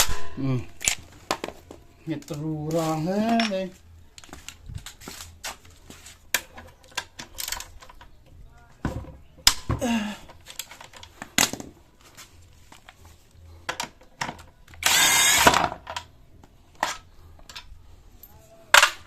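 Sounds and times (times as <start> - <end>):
power tool motor whining: 14.8 - 15.6.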